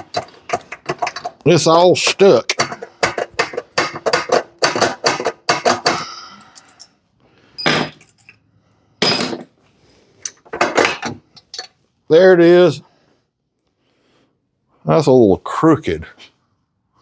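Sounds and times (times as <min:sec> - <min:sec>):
metal engine parts clanking: 0:00.0 - 0:01.4.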